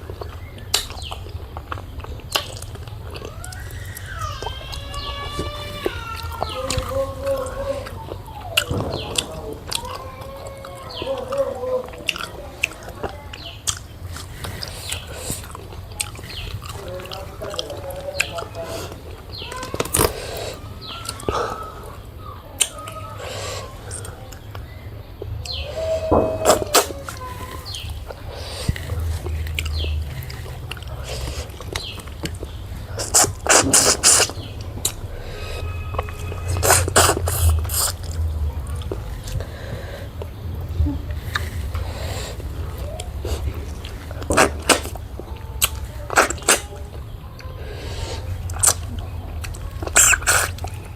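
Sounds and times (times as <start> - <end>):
chewing and lip smacking: 0.0 - 50.9
sharp mouth noises: 25.3 - 40.4, 41.0 - 50.9.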